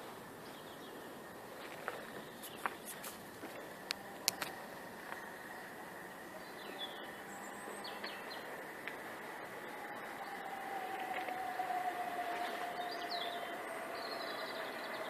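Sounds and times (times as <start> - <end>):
birds chirping: 0.4 - 15.0
train whine: 3.2 - 15.0.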